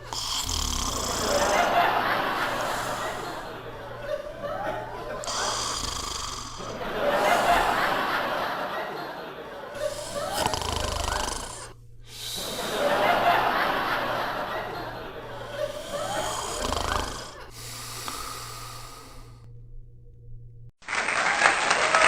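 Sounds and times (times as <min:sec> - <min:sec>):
dog snoring heavily: 0:00.0 - 0:08.5, 0:09.7 - 0:13.6, 0:14.2 - 0:19.5
applause: 0:20.8 - 0:22.0.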